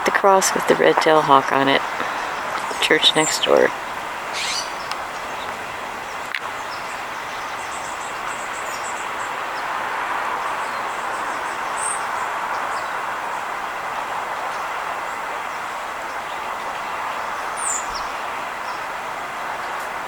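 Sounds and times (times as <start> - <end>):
distant traffic hum: 0.0 - 20.0.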